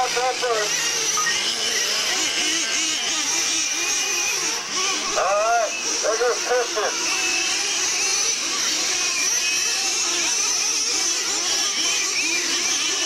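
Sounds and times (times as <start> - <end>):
rc truck engines whining and revving: 0.0 - 13.0.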